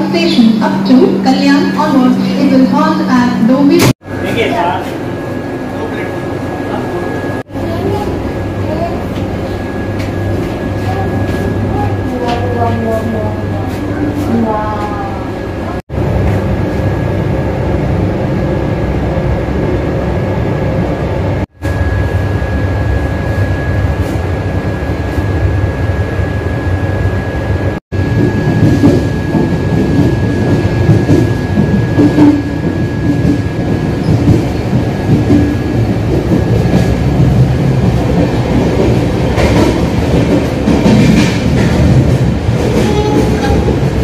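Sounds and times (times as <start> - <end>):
train wheels rumbling and rattling: 28.0 - 44.0.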